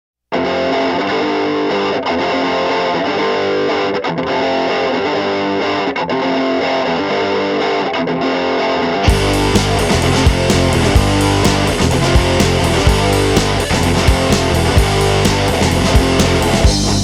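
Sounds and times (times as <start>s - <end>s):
distorted electric guitar chords: 0.3s - 17.0s.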